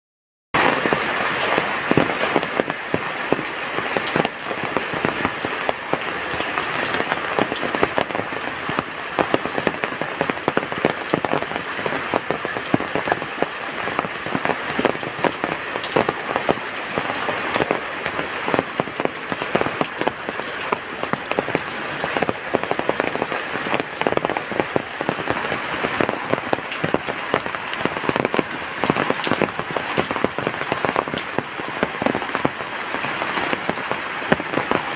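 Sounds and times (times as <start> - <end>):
heavy rain: 0.6 - 34.9.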